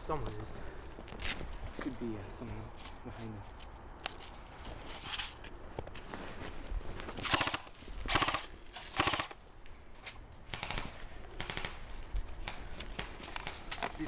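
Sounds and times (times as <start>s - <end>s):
airsoft guns firing bursts: 7.3s - 9.4s, 10.5s - 13.7s.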